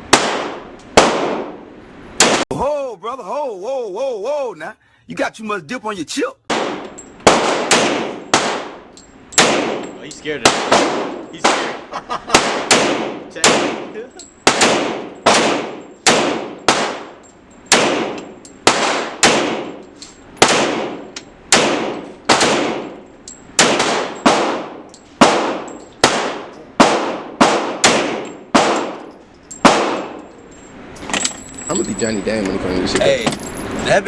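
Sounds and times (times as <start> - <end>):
pistol shots: 0.1 - 1.6, 2.2 - 2.4, 6.5 - 19.8, 20.4 - 23.0, 23.6 - 30.3.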